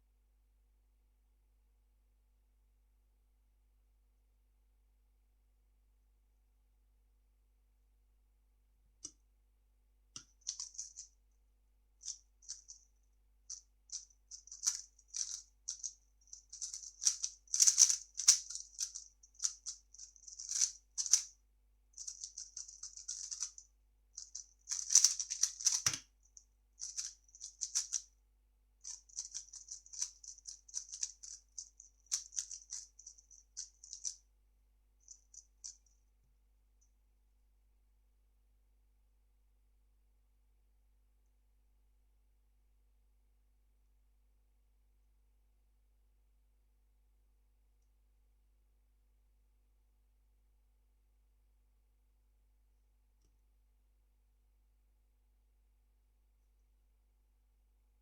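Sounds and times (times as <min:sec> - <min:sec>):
plastic puzzle cube clicking: 0:16.5 - 0:21.3, 0:22.0 - 0:23.6, 0:24.2 - 0:26.0, 0:26.8 - 0:28.0, 0:28.9 - 0:32.9.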